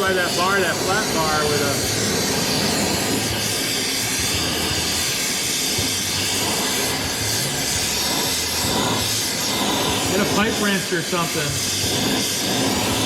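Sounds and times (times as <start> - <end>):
steady hissing rush: 0.0 - 13.0.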